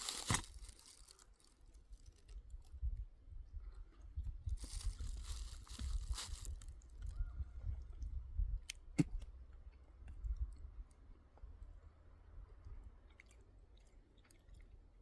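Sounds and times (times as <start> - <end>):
close crunching and rustling: 0.0 - 2.5, 4.5 - 7.2.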